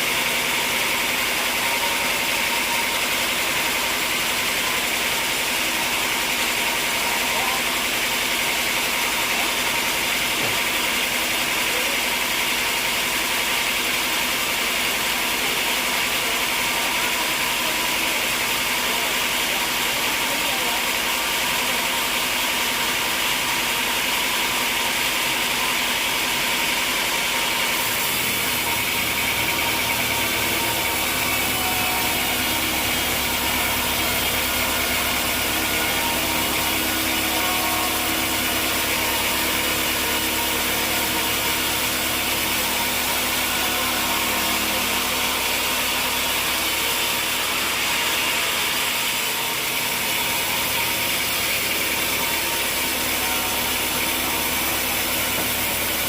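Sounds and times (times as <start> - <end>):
sawmill machinery clatter: 0.0 - 56.0
deep engine hum: 27.7 - 46.6.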